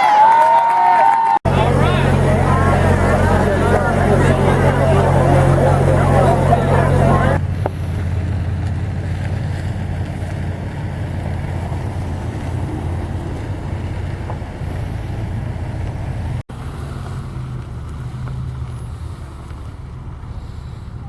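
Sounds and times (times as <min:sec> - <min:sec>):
vehicle engine rumble: 0:01.4 - 0:21.0.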